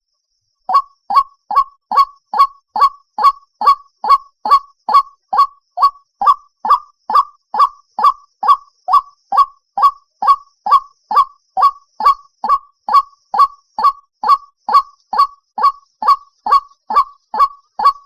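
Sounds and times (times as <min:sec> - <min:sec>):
bird harsh croaking calls: 0:00.7 - 0:18.0.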